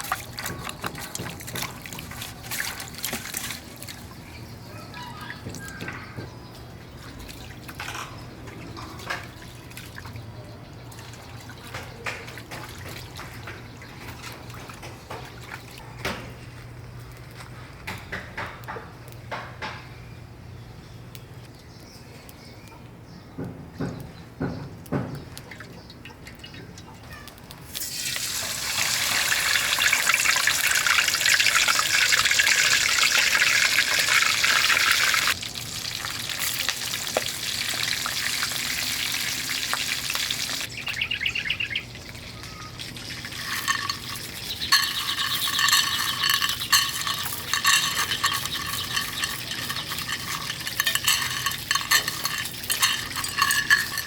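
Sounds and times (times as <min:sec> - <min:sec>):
fish sizzling in hot oil: 0:27.7 - 0:41.0
metal utensil clicking in pan: 0:43.2 - 0:54.0.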